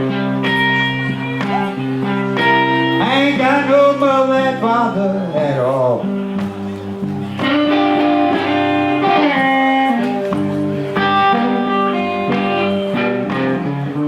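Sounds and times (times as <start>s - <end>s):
person singing: 0.0s - 10.0s
blues guitar: 0.0s - 14.0s.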